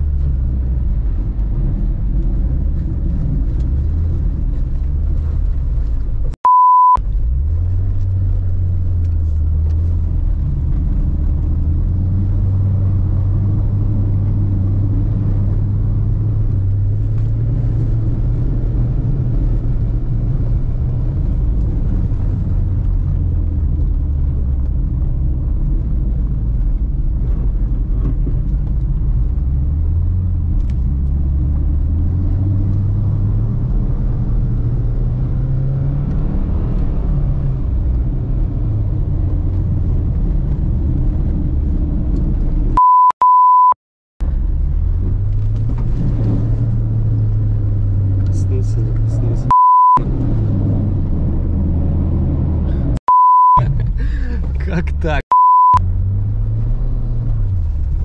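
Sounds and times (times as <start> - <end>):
censor bleep: 6.4 - 7.0, 42.8 - 43.8, 49.5 - 50.0, 53.1 - 53.6, 55.3 - 55.8.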